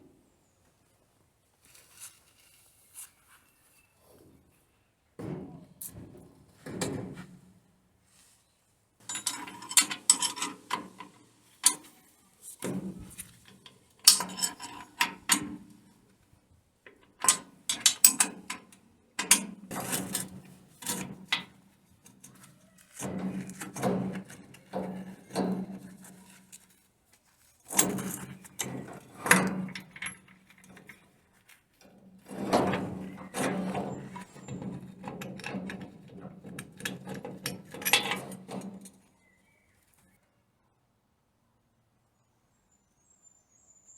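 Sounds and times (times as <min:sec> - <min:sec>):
tools and metal parts clanking: 0:09.0 - 0:15.8, 0:16.9 - 0:26.7, 0:27.7 - 0:39.1.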